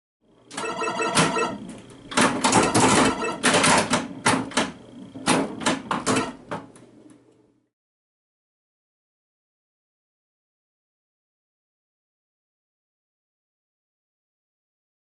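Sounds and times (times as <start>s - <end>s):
sharp mechanical clicks: 2.1s - 6.4s.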